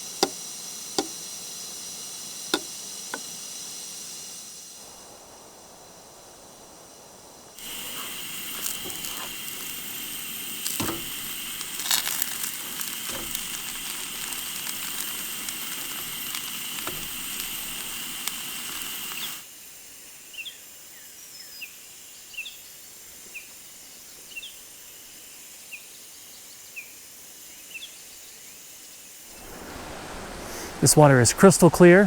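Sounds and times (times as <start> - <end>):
outdoor hiss: 0.0 - 32.0
small bird chirping: 11.7 - 19.4
faint high whine: 29.3 - 32.0.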